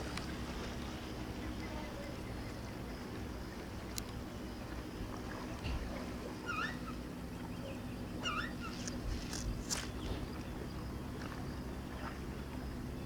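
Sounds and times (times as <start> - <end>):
low rumble of wind or surf: 0.0 - 13.0
seagulls calling: 6.4 - 10.5.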